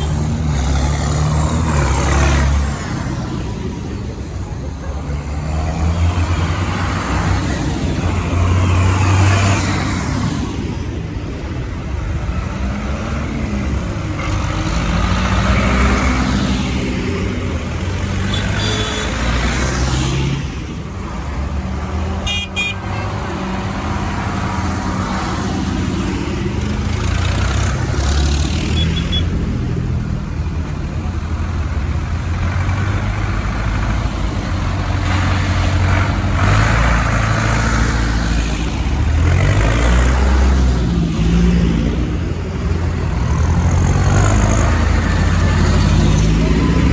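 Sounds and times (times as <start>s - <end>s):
tractors driving past: 0.0s - 46.9s
horn toots: 18.2s - 19.4s, 22.2s - 23.2s.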